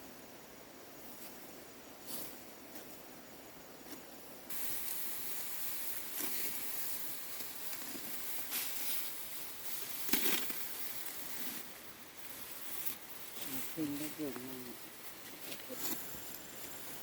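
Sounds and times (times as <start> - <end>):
dry straw rustling: 3.8 - 17.0.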